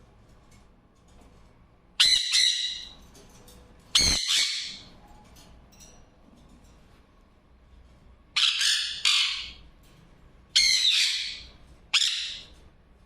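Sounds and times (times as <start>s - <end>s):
parrot squawking: 2.0s - 3.0s, 4.0s - 4.9s, 8.4s - 9.6s, 10.6s - 12.5s.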